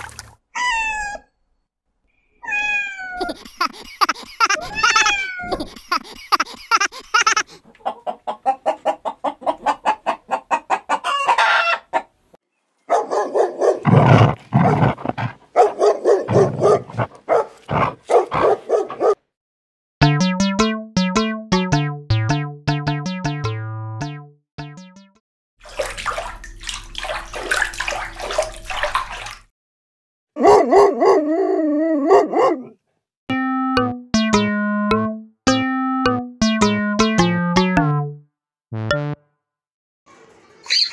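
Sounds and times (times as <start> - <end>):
simple stepped melody: 20.0 - 25.2, 33.3 - 39.2.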